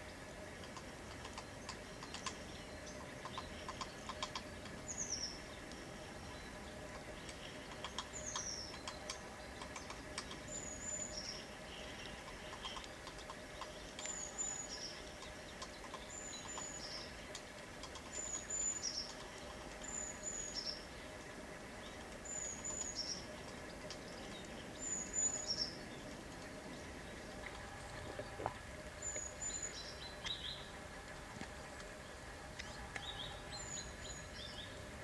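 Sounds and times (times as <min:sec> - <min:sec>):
small bird calling: 0:00.0 - 0:21.2
faint background noise: 0:00.0 - 0:35.0.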